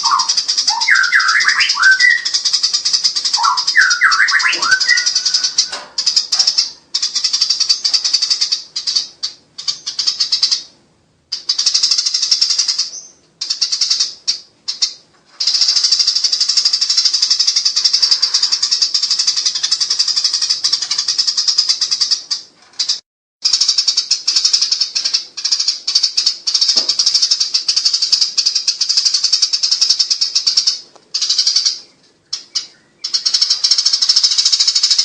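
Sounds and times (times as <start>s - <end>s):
sparrows chattering: 0.0s - 35.0s.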